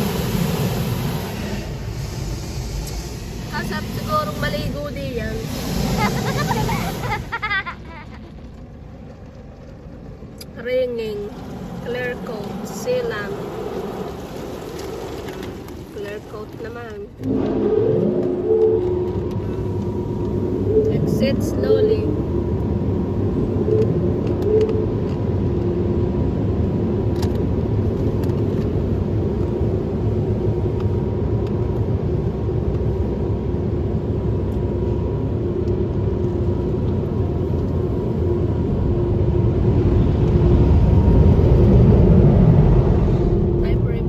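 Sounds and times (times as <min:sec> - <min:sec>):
car wash machinery rumble: 0:00.0 - 0:44.0.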